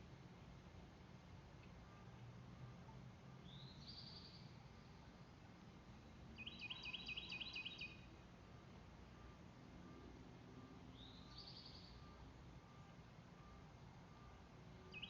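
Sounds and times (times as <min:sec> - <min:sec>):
faint low hum: 0:00.0 - 0:15.0
small songbird singing: 0:03.4 - 0:04.6, 0:06.4 - 0:08.1, 0:10.9 - 0:12.2.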